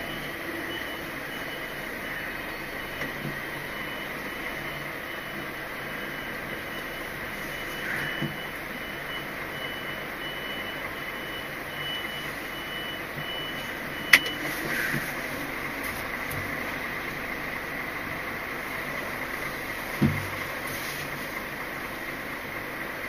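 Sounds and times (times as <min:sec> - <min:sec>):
low engine rumble: 0:00.0 - 0:23.0
vehicle reversing alarm beeping: 0:00.0 - 0:23.0.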